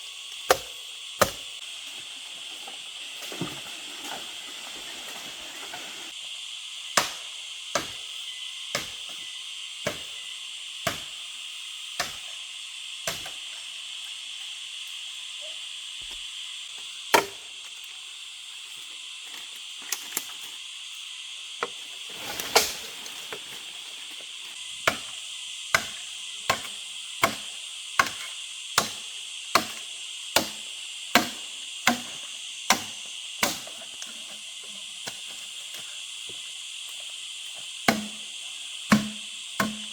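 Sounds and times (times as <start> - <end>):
high-pitched insect buzz: 0.0 - 39.9
sharp chopping knocks: 0.5 - 1.4, 37.9 - 38.2, 38.9 - 39.9.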